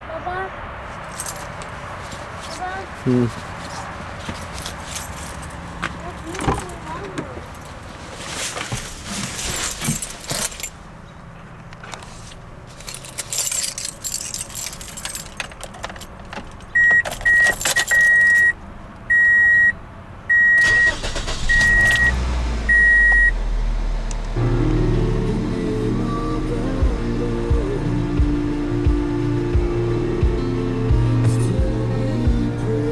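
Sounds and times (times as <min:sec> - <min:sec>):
car engine starting and running: 0:00.0 - 0:32.9
car keys jingling: 0:00.8 - 0:23.4
car warning chime beeping: 0:16.7 - 0:23.4.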